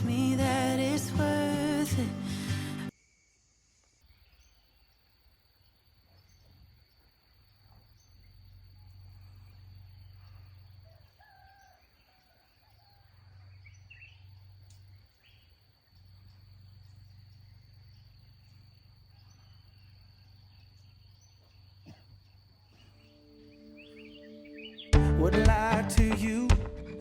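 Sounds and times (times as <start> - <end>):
high insect tone: 0.0 - 11.8, 13.6 - 24.9
bird chirps: 12.9 - 15.6, 16.3 - 25.7.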